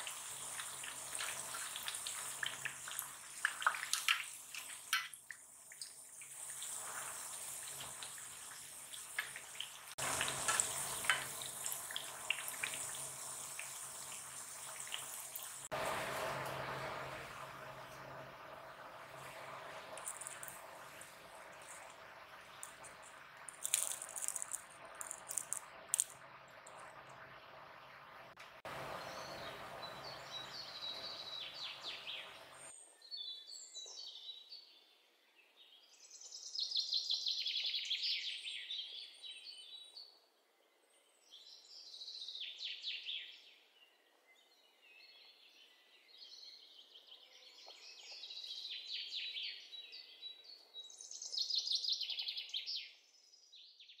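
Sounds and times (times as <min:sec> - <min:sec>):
bird song gliding chirps: 0:28.7 - 0:54.0.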